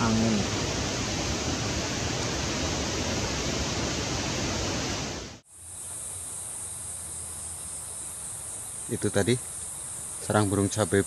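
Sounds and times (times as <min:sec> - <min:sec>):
wind rushing over microphone: 0:00.0 - 0:05.4
high-pitched insect buzz: 0:05.4 - 0:11.0.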